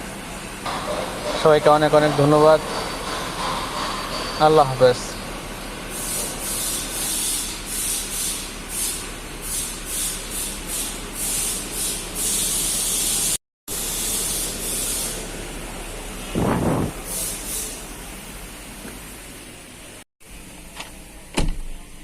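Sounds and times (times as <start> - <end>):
steady low hum: 15.1 - 22.0.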